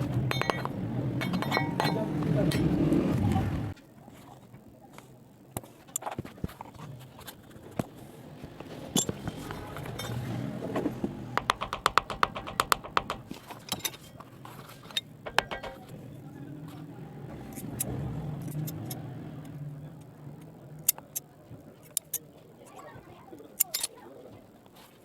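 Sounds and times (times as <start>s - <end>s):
tools tapping on heel: 11.4s - 13.3s, 15.3s - 15.9s.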